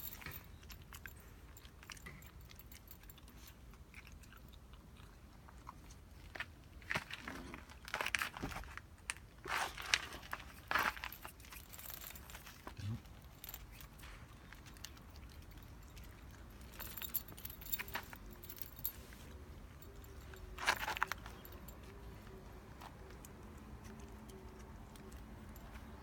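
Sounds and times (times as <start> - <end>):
small metal pieces jingling: 10.7 - 19.0.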